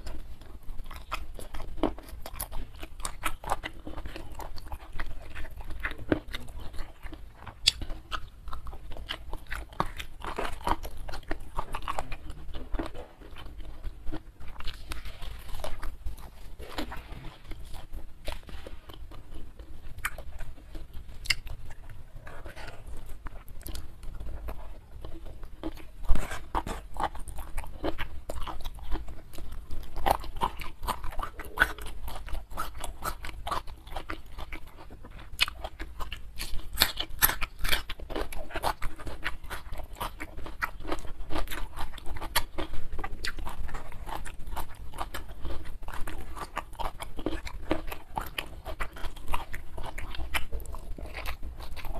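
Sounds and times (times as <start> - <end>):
chewing and crunching: 0.0 - 51.9.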